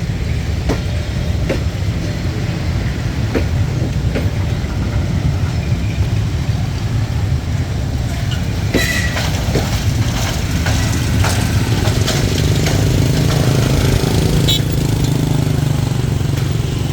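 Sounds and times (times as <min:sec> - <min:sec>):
train rumbling past: 0:00.0 - 0:16.9
clicks and clatter: 0:08.4 - 0:15.2.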